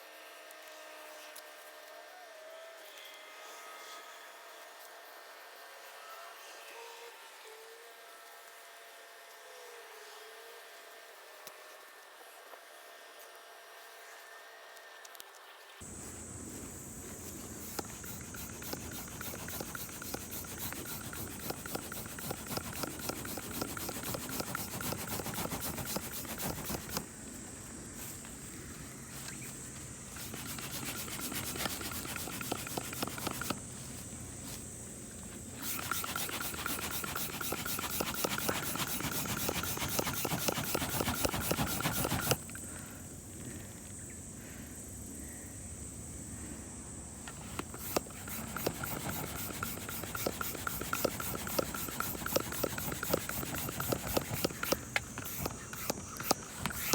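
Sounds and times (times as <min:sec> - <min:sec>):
rapid scraping strokes: 0:15.8 - 0:27.4, 0:29.1 - 0:34.6, 0:35.3 - 0:42.6, 0:47.3 - 0:56.9.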